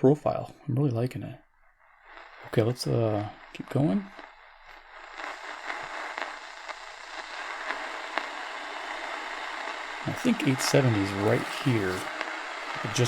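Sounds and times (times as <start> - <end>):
radio static hiss: 1.8 - 13.0.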